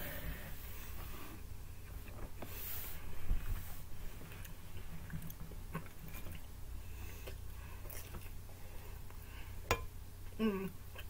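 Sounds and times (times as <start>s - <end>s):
person chewing pizza: 4.2s - 9.2s.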